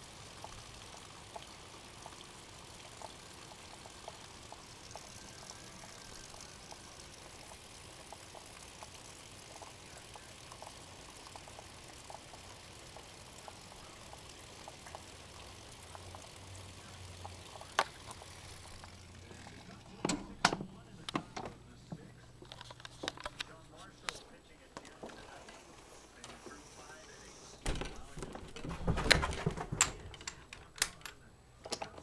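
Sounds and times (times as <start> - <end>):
dripping ticks: 0.0 - 19.9.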